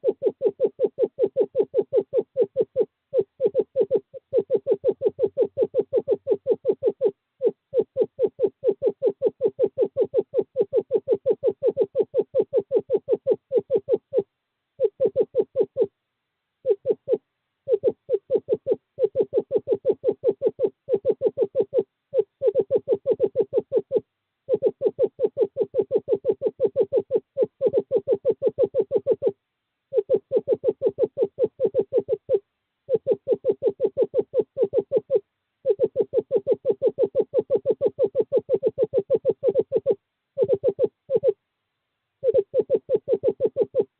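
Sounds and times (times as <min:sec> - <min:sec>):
screech owl trilling: 0:00.0 - 0:16.0, 0:16.6 - 0:41.4, 0:42.2 - 0:43.9.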